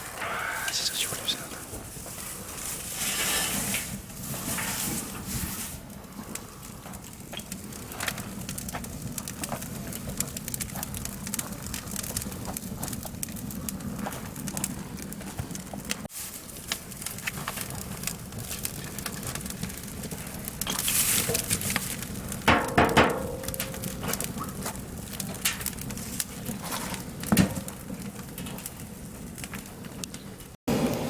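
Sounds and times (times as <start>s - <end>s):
fire hissing: 0.0s - 6.7s
wood fire crackling and popping: 0.0s - 31.0s.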